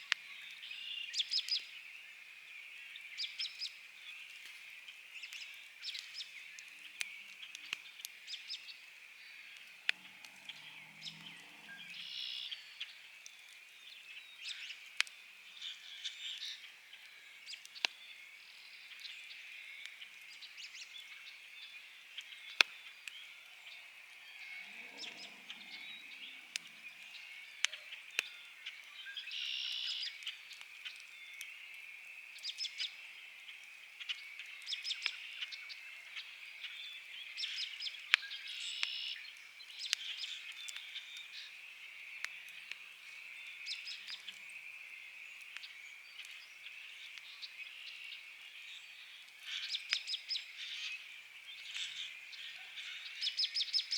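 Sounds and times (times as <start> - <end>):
campfire crackling and popping: 0.0 - 52.4
bird chirps: 5.2 - 14.8, 15.6 - 33.0, 34.0 - 53.9
frogs chorus: 23.3 - 28.0.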